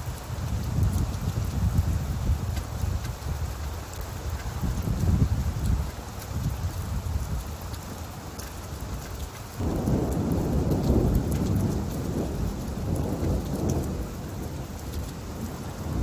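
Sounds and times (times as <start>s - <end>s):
steady rain falling: 0.0s - 16.0s
thunder rumbling: 9.6s - 16.0s.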